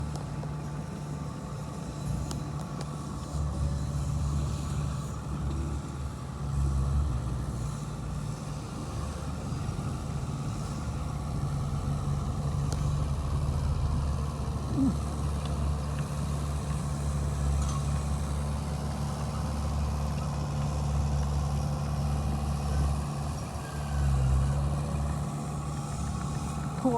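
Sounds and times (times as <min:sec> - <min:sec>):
diesel engine droning: 0:00.0 - 0:26.9.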